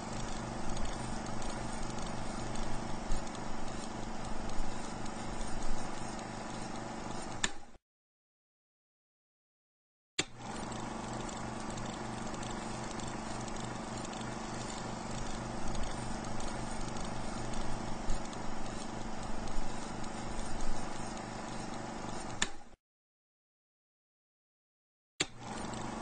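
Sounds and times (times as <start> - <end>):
stationary engine running: 0.0 - 6.8, 10.4 - 22.3.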